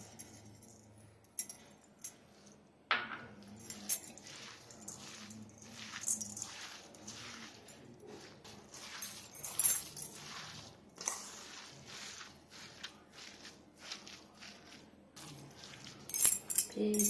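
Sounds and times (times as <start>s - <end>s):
hand mixing in bowl: 3.4s - 17.0s.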